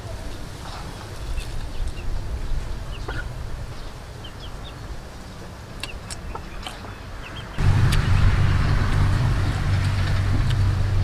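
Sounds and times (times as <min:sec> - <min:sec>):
birds chirping: 0:00.7 - 0:11.0
low steady rumble: 0:07.6 - 0:11.0.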